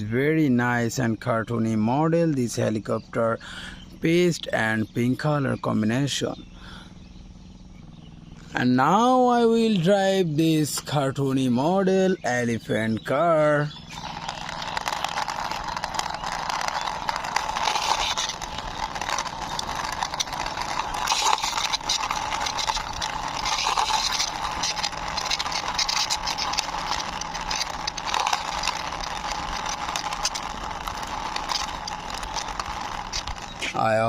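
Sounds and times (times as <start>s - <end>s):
toy car wheels rolling: 11.9s - 34.0s.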